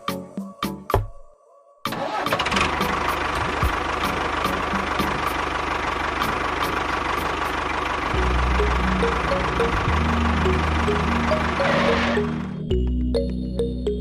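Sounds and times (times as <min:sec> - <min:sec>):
small engine running rattly: 0:02.2 - 0:12.5.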